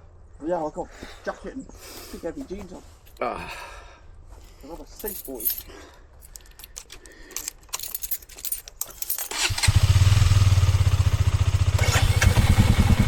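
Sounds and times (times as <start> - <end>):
light clicks and rattles: 4.4 - 9.4
motorcycle engine idling: 9.4 - 13.0.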